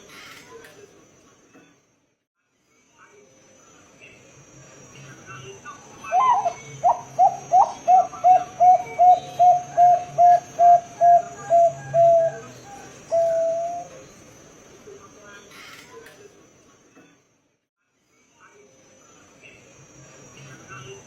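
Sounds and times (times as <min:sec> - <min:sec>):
dove cooing: 0:06.0 - 0:14.0.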